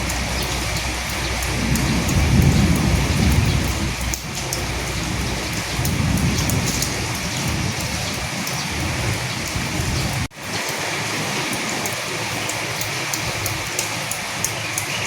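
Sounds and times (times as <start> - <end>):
low rumble of thunder: 0.0 - 10.3
raindrops ticking: 0.0 - 15.0
steady rain: 0.0 - 15.0.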